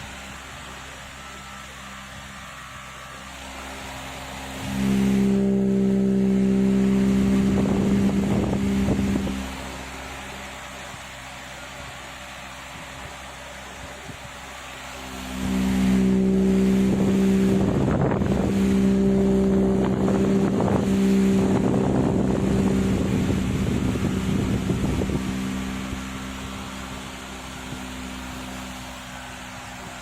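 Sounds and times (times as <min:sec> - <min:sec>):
small motor humming and rattling: 0:00.0 - 0:30.0.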